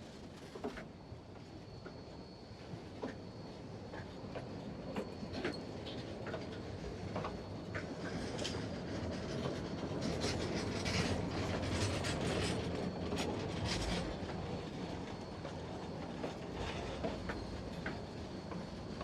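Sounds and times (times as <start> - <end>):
steam train rumbling on track: 5.0 - 19.0.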